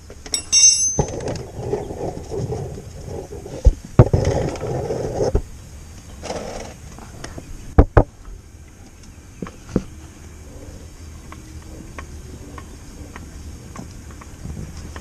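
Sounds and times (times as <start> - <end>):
scraping and rubbing: 0.9 - 5.4.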